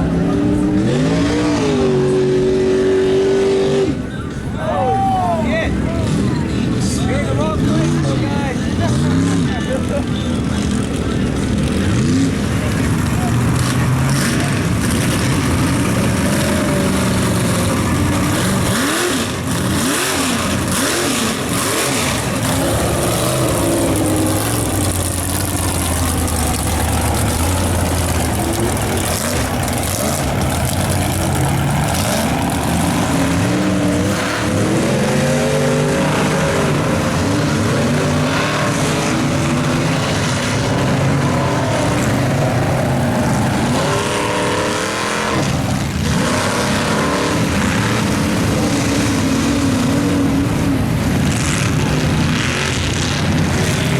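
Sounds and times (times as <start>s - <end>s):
truck engine revving hard: 0.0s - 53.9s.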